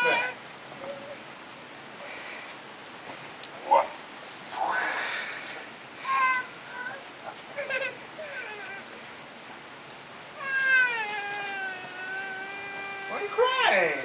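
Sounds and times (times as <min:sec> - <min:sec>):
high-pitched cries: 0:00.0 - 0:00.4, 0:06.0 - 0:07.0, 0:10.4 - 0:14.0
long drawn-out cry: 0:00.0 - 0:00.4, 0:10.4 - 0:14.0.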